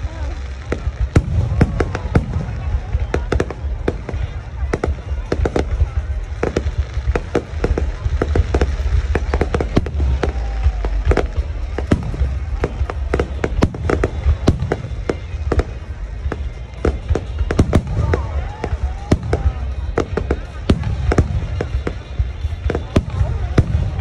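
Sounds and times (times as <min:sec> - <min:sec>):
fireworks bangs and pops: 0:00.0 - 0:24.0.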